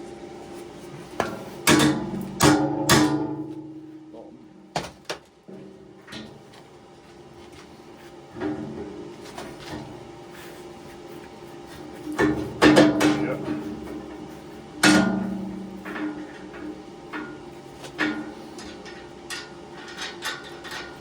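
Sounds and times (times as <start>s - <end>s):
hammer striking metal: 1.2s - 3.8s.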